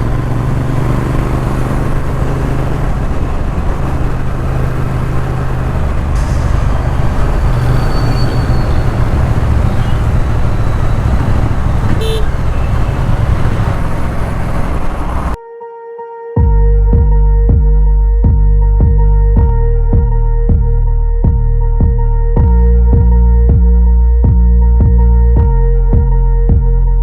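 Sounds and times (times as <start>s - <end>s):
motorcycle engine running: 0.0s - 15.4s
wind and road noise: 0.0s - 15.4s
motorcycle horn toot: 7.8s - 14.5s.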